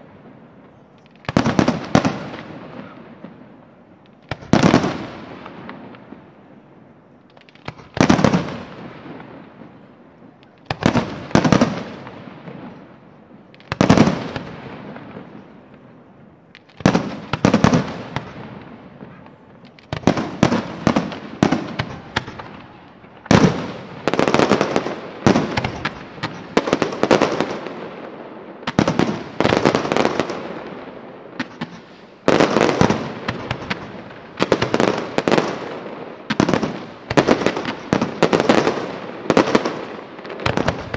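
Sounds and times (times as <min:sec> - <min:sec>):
crackling firework bursts: 0:00.0 - 0:40.9
firework shells bursting: 0:16.5 - 0:27.7, 0:31.4 - 0:35.7.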